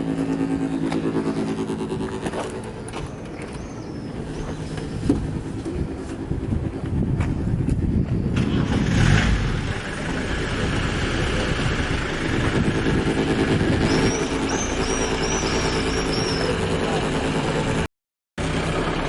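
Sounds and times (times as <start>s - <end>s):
steady low tones: 0.0s - 8.3s
low rumbling drone: 0.0s - 19.0s.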